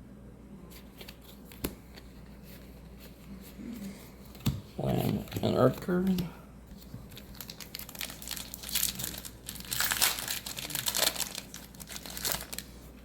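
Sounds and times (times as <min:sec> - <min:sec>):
plastic wrapper crinkling: 0:06.8 - 0:13.0.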